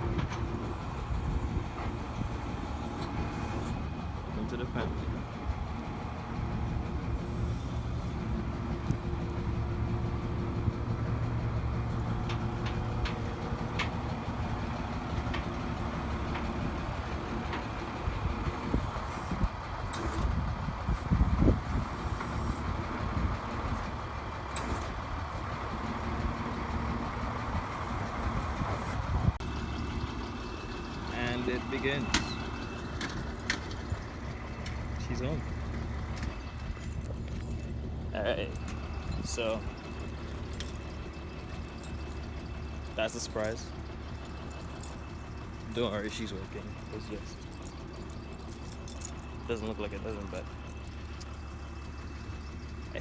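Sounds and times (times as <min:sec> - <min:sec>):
truck engine running: 0:00.0 - 0:53.0.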